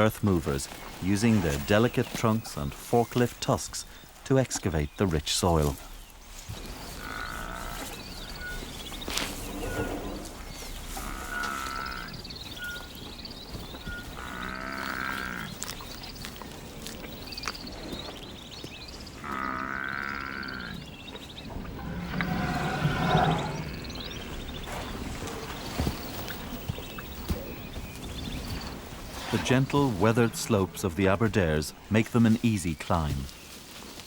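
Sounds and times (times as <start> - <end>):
high chirping: 17.0 - 32.9.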